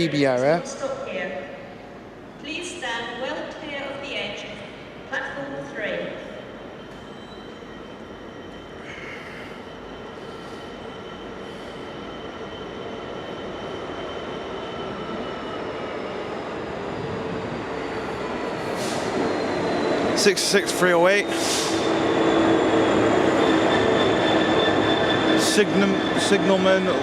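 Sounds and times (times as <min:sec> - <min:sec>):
high brake squeal: 0:06.2 - 0:15.1, 0:18.6 - 0:20.1, 0:20.8 - 0:27.0
wheels rumbling on rail: 0:06.8 - 0:27.0.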